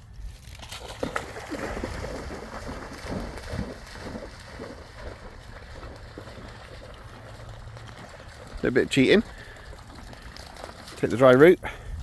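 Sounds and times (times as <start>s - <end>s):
dog splashing through water: 0.4s - 11.5s
wind rumble on microphone: 11.8s - 12.0s.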